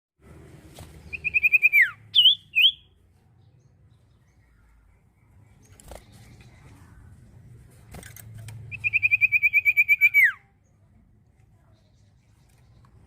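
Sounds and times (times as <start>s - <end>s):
bird singing high notes: 1.1s - 3.0s.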